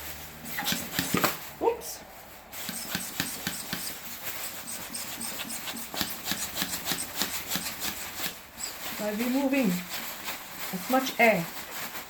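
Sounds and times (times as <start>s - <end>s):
hand vacuum pump strokes: 0.0s - 1.4s, 2.5s - 9.8s.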